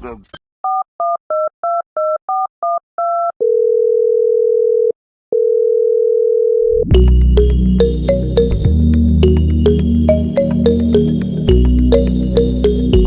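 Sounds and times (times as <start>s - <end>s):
music with heavy bass: 6.9s - 13.0s.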